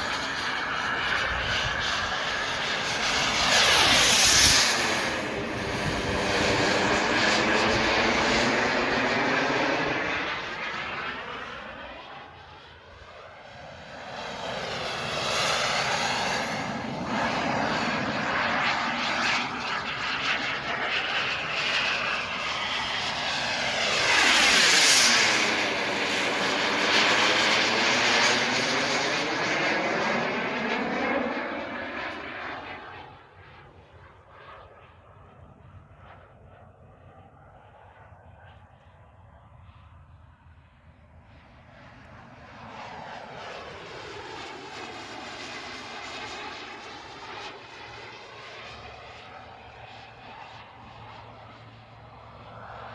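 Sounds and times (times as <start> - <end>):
model jet turbine whine: 0.0 - 52.9.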